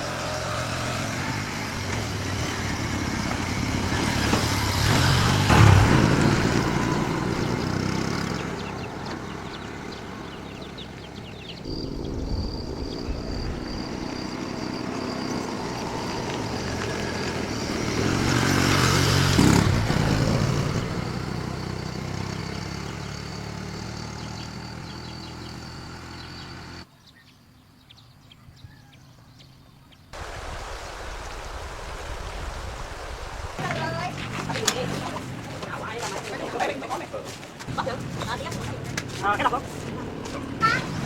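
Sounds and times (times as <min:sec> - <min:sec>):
vehicle engine passing by: 0:00.0 - 0:26.8.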